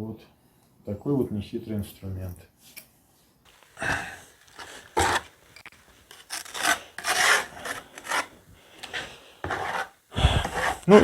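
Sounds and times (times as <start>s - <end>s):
rough scraping strokes: 4.5s - 5.4s, 6.0s - 11.0s.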